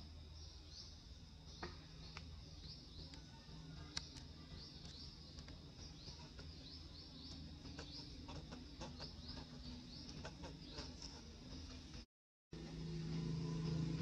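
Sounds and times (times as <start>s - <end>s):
faint bird chirping: 0.0s - 14.0s
low steady rumble: 12.6s - 14.0s.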